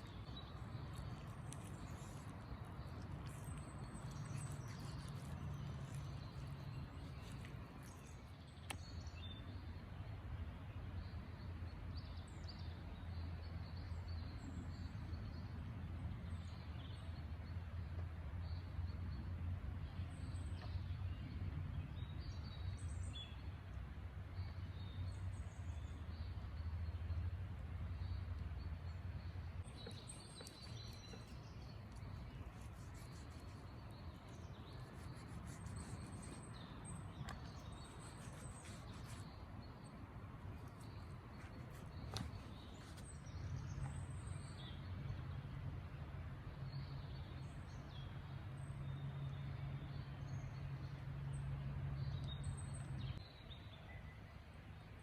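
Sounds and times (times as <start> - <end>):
birds chirping: 0.0 - 9.8, 28.0 - 45.0.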